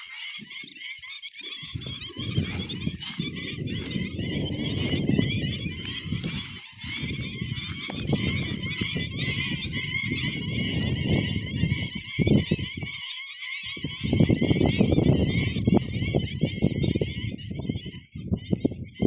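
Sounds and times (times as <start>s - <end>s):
rough honk-like bird calls: 0.0s - 11.9s
birds twittering: 0.0s - 19.0s.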